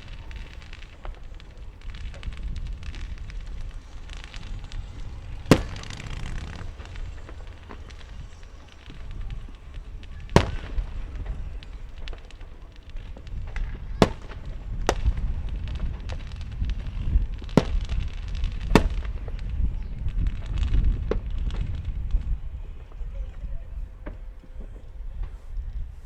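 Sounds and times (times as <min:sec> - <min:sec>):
fireworks bangs: 0:00.0 - 0:26.0
fireworks pops and crackles: 0:00.0 - 0:26.0
low rumble: 0:01.8 - 0:10.1.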